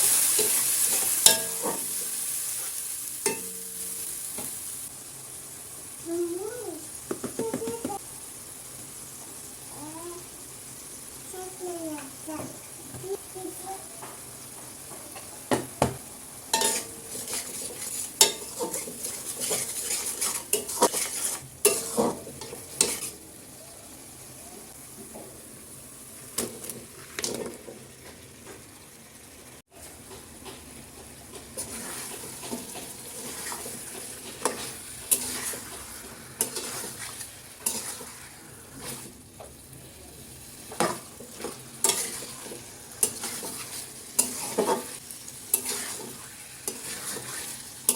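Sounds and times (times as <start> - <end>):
food sizzling in a pan: 0.0 - 47.9
utensil clinking and scraping pan: 0.3 - 2.1, 16.5 - 23.2, 31.3 - 38.2, 40.7 - 47.9.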